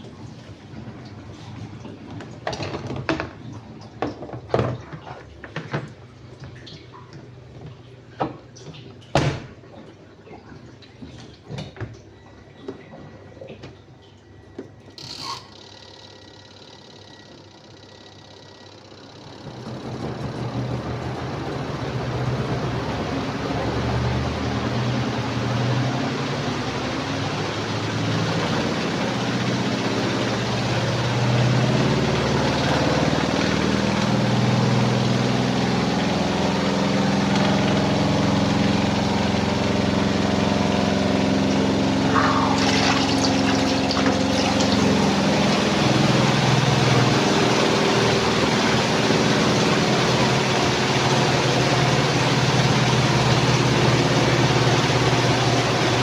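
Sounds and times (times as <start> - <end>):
washing machine motor hum: 0.0 - 56.0
water churning: 19.4 - 56.0.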